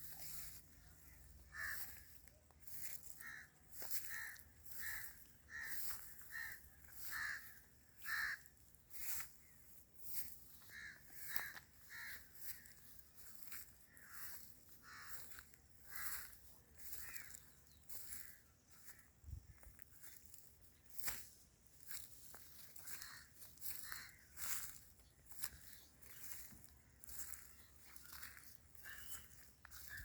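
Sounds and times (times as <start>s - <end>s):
birds calling: 0.0s - 21.2s, 21.8s - 30.0s.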